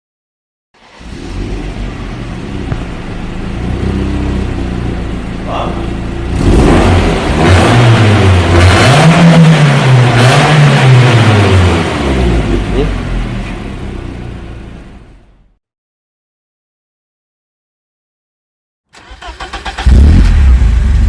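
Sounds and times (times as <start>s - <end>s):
car engine idling and revving: 0.8s - 15.6s, 19.0s - 21.0s.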